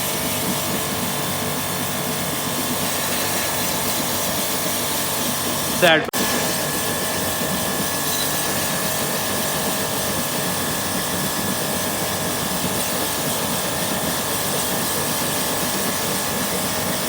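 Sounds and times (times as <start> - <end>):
machine hiss with high whine: 0.0 - 17.0.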